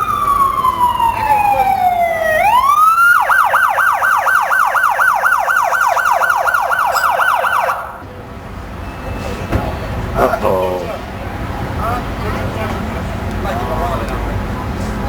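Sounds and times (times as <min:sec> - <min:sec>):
police siren wailing and yelping: 0:00.0 - 0:08.0.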